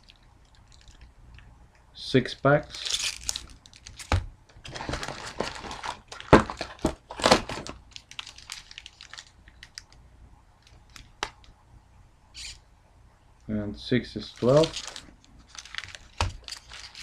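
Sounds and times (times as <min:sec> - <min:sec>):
card packs crinkling and rustling: 0:00.0 - 0:01.1, 0:02.7 - 0:10.0, 0:10.6 - 0:11.5, 0:14.2 - 0:17.0.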